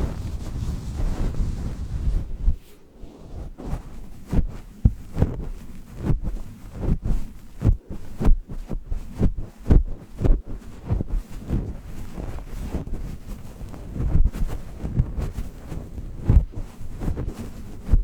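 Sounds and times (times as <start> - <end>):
low muffled thumps: 0.0 - 2.6, 3.5 - 11.7.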